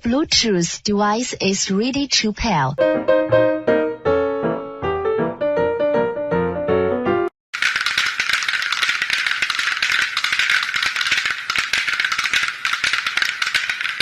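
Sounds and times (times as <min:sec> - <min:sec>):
fast high rattling clatter: 0:07.5 - 0:14.0.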